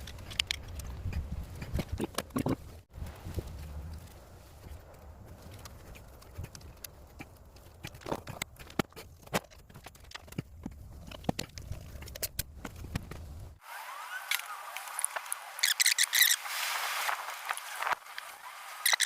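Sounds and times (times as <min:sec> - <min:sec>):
light low rumble: 0:02.4 - 0:07.8.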